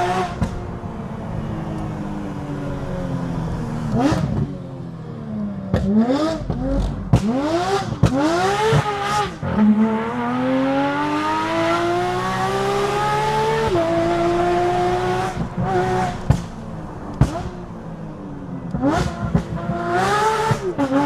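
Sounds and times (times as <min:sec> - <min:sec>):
car engine revving: 0:00.0 - 0:21.0
exhaust cracks: 0:15.2 - 0:19.8.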